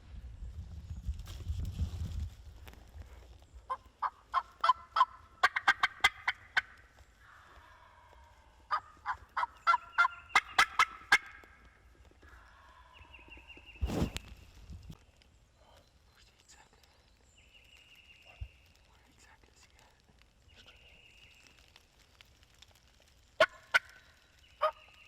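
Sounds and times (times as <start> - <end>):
turkey call yelping: 3.7 - 6.8, 8.7 - 11.6, 23.4 - 24.0.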